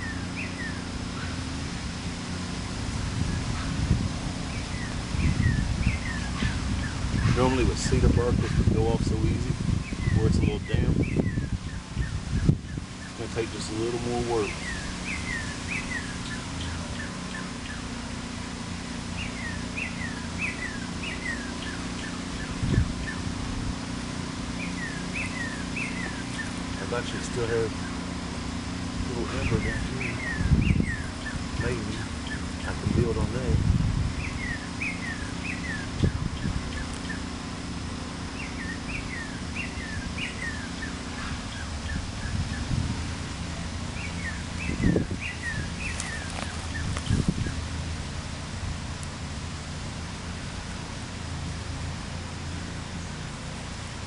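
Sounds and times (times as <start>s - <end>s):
birds calling with downward notes: 0.0s - 54.0s
songbird singing: 0.0s - 54.0s
steady low rumble: 0.0s - 54.0s
dull low bumps: 14.4s - 54.0s.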